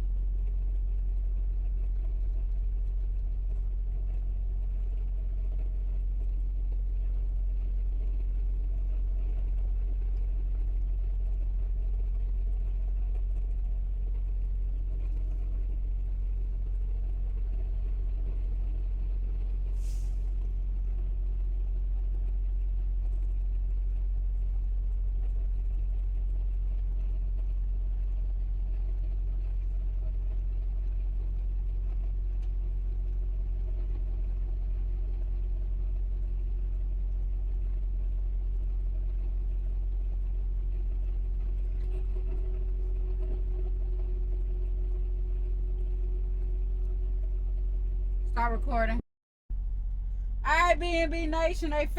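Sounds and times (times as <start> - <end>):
truck engine rumbling: 0.0 - 26.0, 32.7 - 51.9
short hiss: 19.8 - 20.4.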